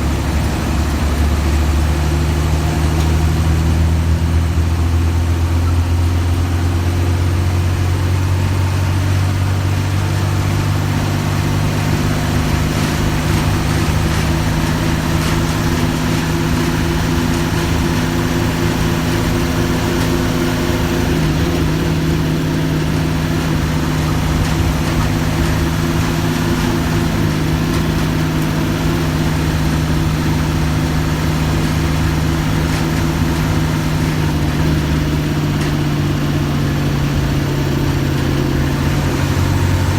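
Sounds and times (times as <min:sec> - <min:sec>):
bus diesel engine running: 0:00.0 - 0:39.9.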